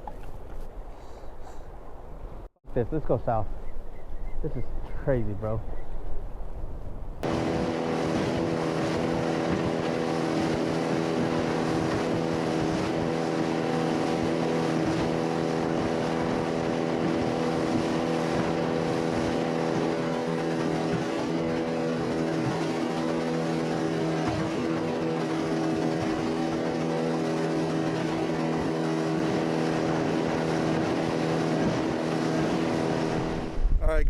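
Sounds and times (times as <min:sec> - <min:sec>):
outboard motor running: 0:07.2 - 0:33.8.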